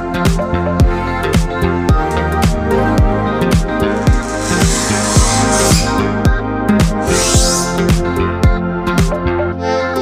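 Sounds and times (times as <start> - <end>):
hiss: 4.0 - 6.1, 7.0 - 7.9.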